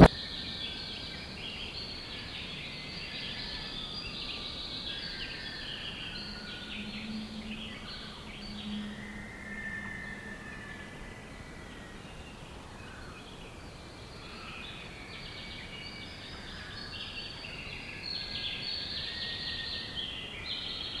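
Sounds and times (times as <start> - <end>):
background hiss: 0.0 - 9.4.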